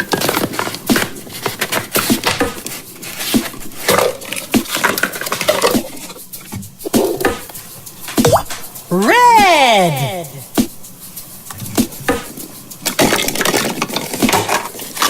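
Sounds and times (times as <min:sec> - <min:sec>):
small plastic pieces clicking: 0:12.8 - 0:15.0.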